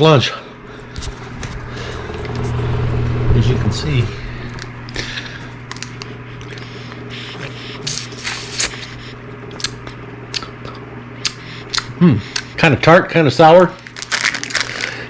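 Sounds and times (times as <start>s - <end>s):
steady low hum: 0.0s - 15.0s
crunching popsicle: 5.8s - 10.5s, 13.8s - 15.0s
wet chewing clicks: 5.8s - 12.6s.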